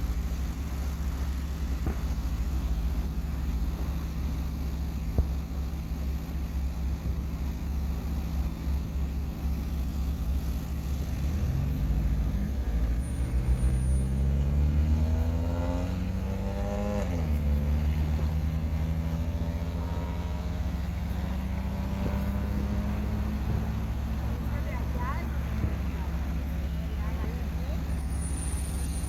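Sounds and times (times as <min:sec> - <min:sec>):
vehicle engine humming: 0:00.0 - 0:29.0
engine revving up: 0:10.9 - 0:27.9.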